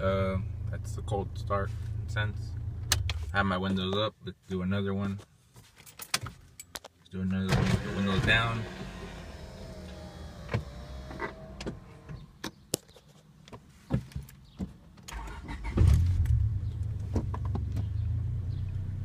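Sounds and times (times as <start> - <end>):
car engine cranking and idling: 0.0 - 3.8, 7.5 - 12.5, 15.0 - 19.0.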